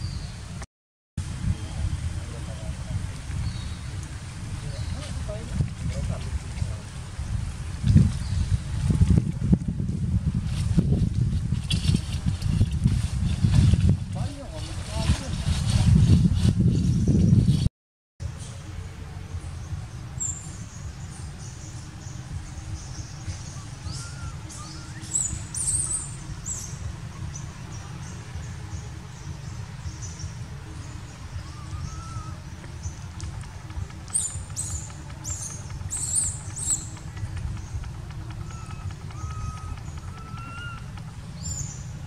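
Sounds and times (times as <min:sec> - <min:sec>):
steady low rumble: 0:01.2 - 0:42.0
small birds chirping: 0:01.5 - 0:06.8, 0:18.4 - 0:42.0
faint rising and falling calls: 0:18.5 - 0:42.0.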